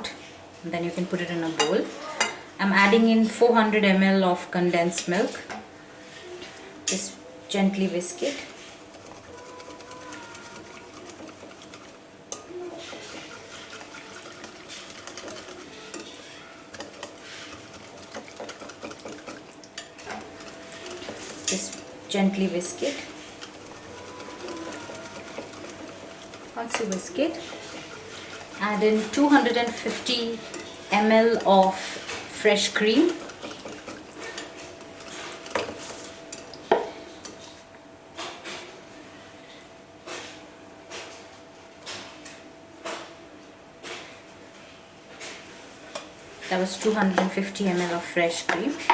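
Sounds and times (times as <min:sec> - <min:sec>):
whisk clicking and scraping in bowl: 0:07.9 - 0:37.6, 0:45.9 - 0:48.9.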